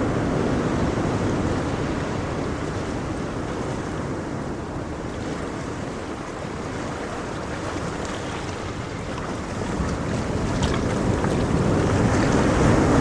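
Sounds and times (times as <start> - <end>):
ocean waves surf: 0.0 - 13.0.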